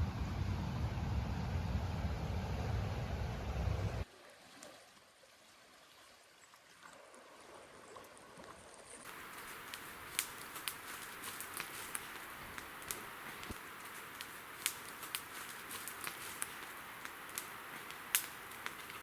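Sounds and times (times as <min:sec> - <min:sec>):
low vehicle rumble: 0:00.0 - 0:04.0
faint outdoor ambience: 0:00.0 - 0:04.1, 0:07.1 - 0:19.0
steady hiss with clicks and crackles: 0:09.0 - 0:19.0.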